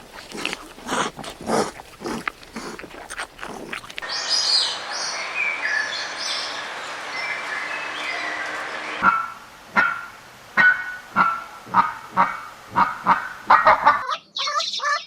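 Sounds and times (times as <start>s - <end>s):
steady outdoor hiss: 0.0s - 14.0s
birds chirping: 0.8s - 15.0s.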